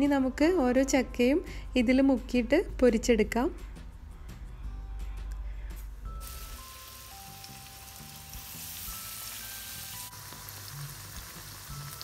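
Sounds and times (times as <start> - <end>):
light background music: 0.0 - 12.0
food sizzling in hot oil: 6.2 - 12.0.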